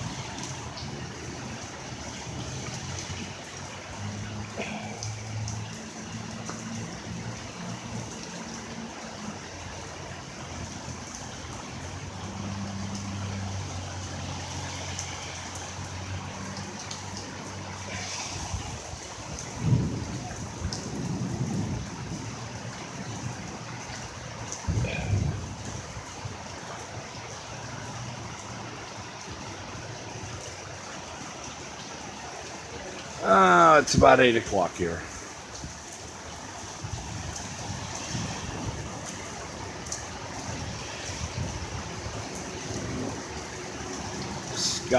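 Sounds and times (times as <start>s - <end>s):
heavy rain falling: 0.0s - 44.9s
water running: 33.2s - 35.1s.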